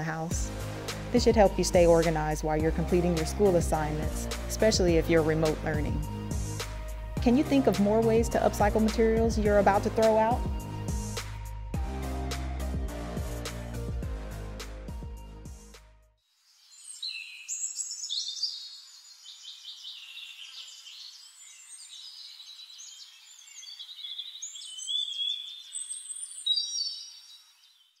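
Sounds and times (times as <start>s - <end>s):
music track: 0.0s - 15.8s
small birds chirping: 16.5s - 28.0s.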